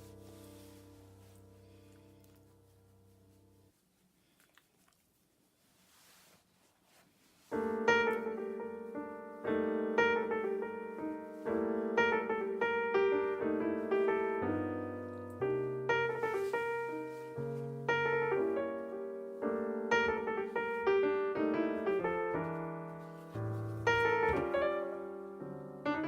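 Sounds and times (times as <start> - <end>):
piano chords: 0.0 - 3.7, 7.5 - 26.0
piano bass line: 0.0 - 3.8, 7.5 - 26.0.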